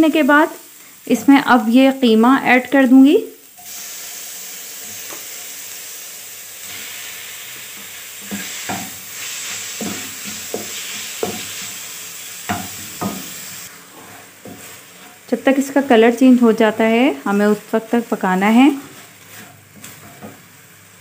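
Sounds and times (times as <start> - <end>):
meat sizzling in hot oil: 0.0 - 21.0
spatula scraping and tapping pan: 7.7 - 11.8, 12.4 - 15.3, 18.7 - 20.6.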